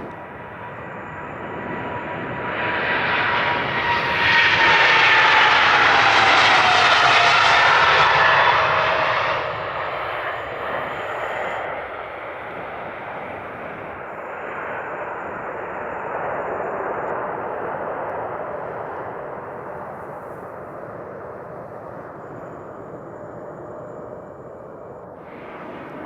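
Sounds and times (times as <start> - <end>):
jet whine falling in pitch: 0.0 - 11.8, 22.0 - 26.0
jet engines roaring past: 0.0 - 26.0.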